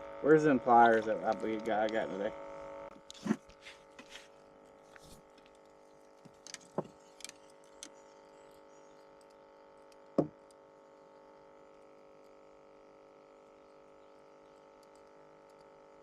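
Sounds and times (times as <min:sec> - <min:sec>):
faint steady hum: 0:00.0 - 0:16.0
gear knocking and clicking in a boat: 0:06.2 - 0:08.0.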